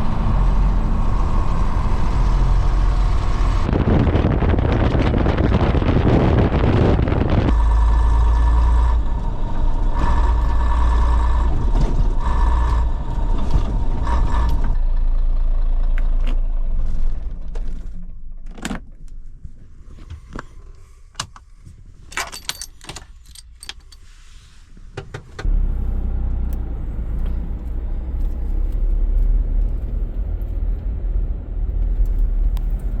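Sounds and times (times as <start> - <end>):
lorry diesel engine rumbling: 0.0 - 18.8, 19.5 - 33.0
keys jangling: 22.1 - 24.1.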